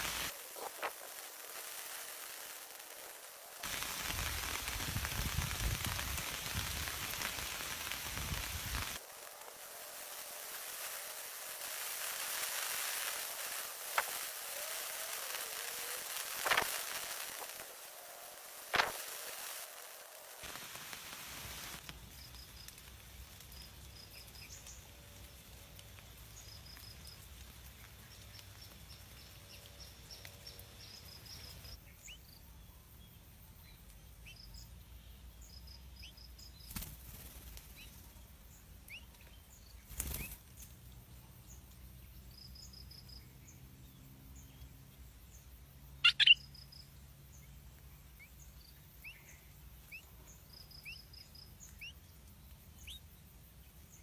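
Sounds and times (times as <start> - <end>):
small birds chirping: 0.0 - 2.8, 3.6 - 9.0, 20.4 - 54.0.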